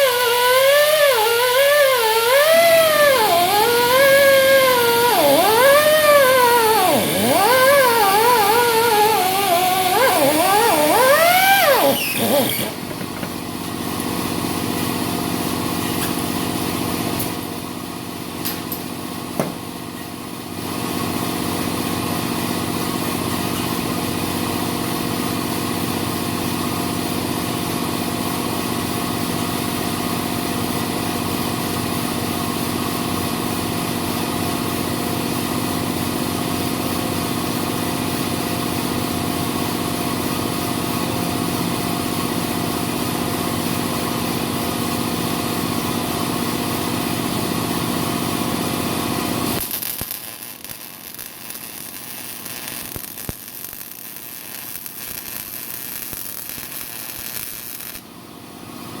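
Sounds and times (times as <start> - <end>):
small motor humming: 0.0 - 12.9
warbling tone gliding: 0.6 - 12.8.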